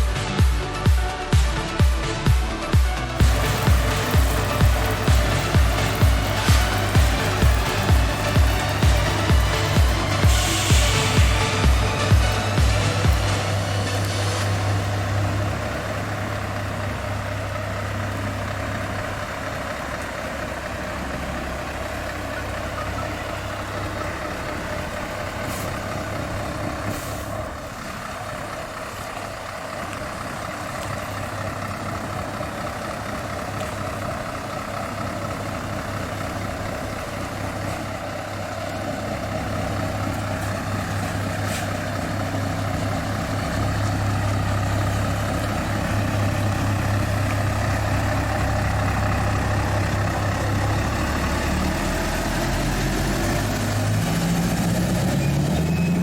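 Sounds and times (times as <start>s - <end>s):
diesel engine low drone: 0.0s - 56.0s
air hissing: 3.2s - 15.7s.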